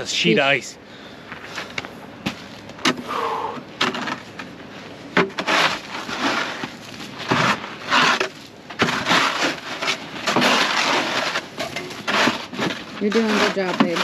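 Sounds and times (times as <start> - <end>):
hand tool chipping ice: 5.2 - 14.0.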